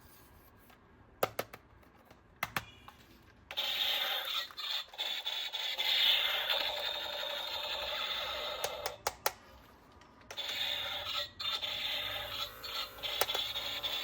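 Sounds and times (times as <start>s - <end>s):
sharp plastic clicks: 8.6s - 9.4s.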